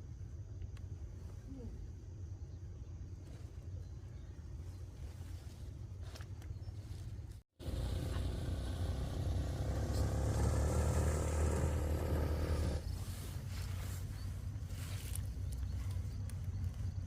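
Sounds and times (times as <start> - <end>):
motor vehicle engine rumbling: 7.6 - 17.0.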